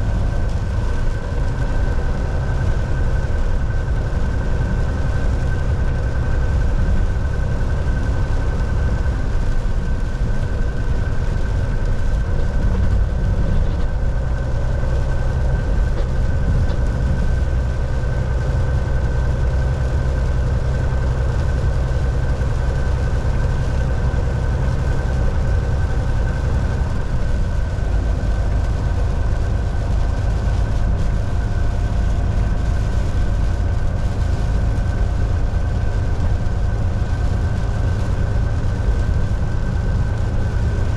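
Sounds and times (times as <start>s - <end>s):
road rumble: 0.0s - 40.9s
thin constant whine: 0.0s - 40.9s
truck diesel engine drone: 0.0s - 40.9s.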